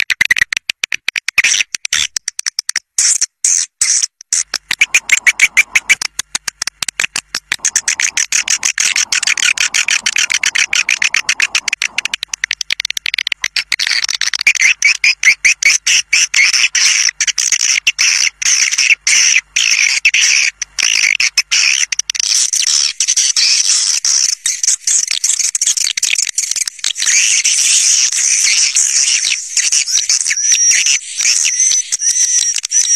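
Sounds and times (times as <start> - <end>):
swiftlets chirping and twittering: 7.6 - 12.4, 19.6 - 32.9.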